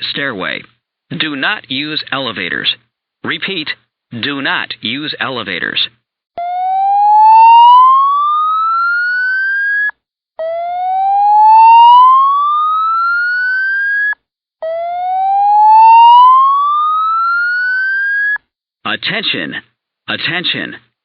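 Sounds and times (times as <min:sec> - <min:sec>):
fire alarm whoop tone: 0:06.4 - 0:18.4.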